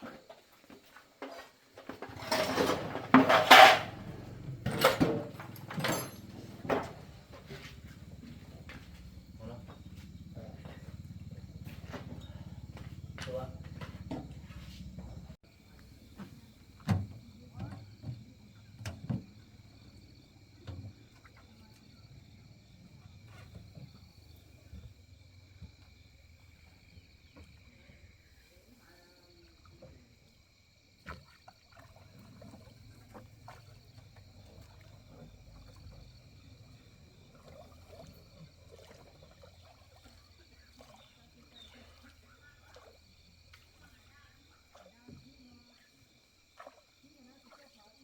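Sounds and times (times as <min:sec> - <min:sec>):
insects trilling: 0:01.4 - 0:48.0
metallic clattering and knocks: 0:02.0 - 0:07.1.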